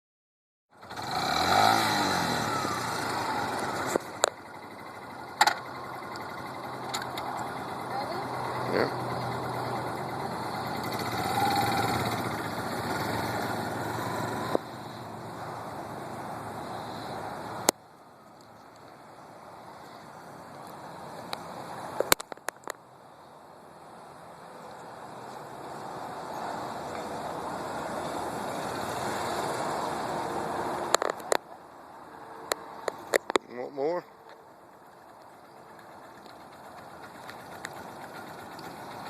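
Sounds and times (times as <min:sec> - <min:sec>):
motorcycle engine running: 0:00.7 - 0:15.4, 0:34.8 - 0:39.0.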